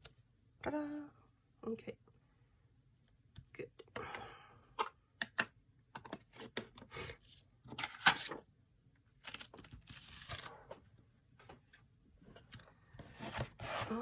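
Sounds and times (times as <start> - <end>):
paper rustling and scraping: 9.3 - 10.6, 13.0 - 14.0.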